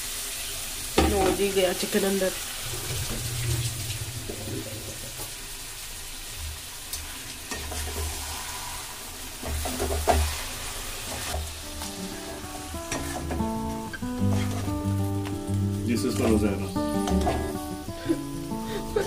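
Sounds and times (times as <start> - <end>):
chicken sizzling in hot oil: 0.0 - 19.0
background music: 11.5 - 19.0
ladle scraping metal pan: 14.2 - 14.8.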